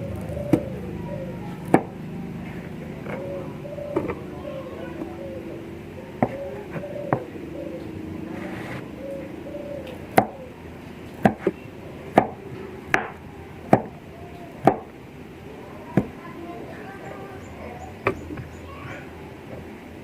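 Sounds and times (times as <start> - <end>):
knife chopping on cutting board: 11.2 - 13.9.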